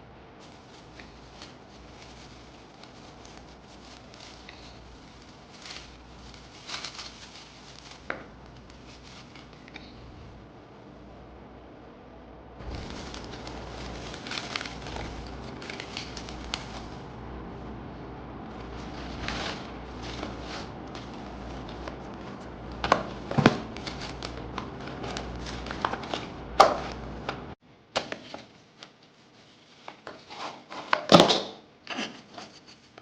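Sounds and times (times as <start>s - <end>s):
low hum: 0.0s - 27.6s
packaging rustling and crinkling: 0.4s - 10.4s, 12.6s - 27.6s.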